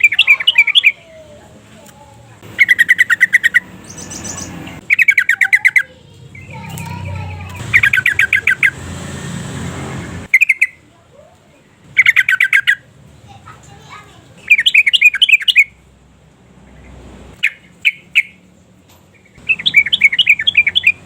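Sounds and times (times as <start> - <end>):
bird bubbling chatter: 0.0 - 1.2, 2.4 - 8.8, 11.9 - 12.9.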